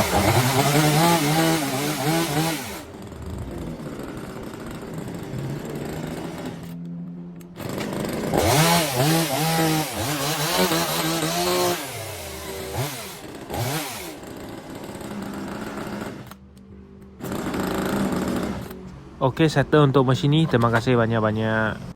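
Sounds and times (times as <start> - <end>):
chainsaw engine idling and revving: 0.0 - 6.8, 7.6 - 16.4, 17.2 - 18.8.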